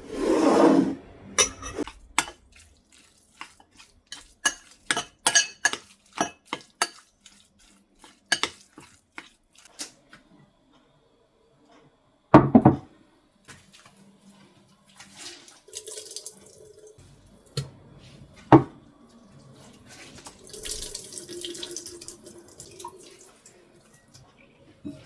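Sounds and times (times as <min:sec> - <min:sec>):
dishes clattering: 0:01.4 - 0:02.4, 0:04.4 - 0:07.0.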